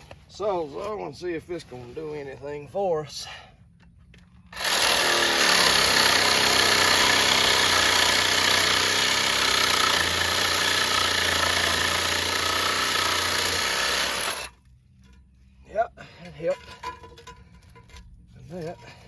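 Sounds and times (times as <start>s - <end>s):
reciprocating saw cutting hose: 4.6s - 14.6s.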